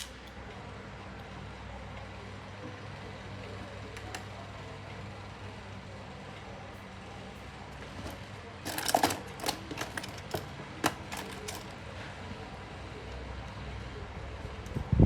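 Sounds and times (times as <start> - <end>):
small metal parts clicking: 0.0 - 0.3, 7.9 - 11.8
low electrical hum: 0.0 - 15.0.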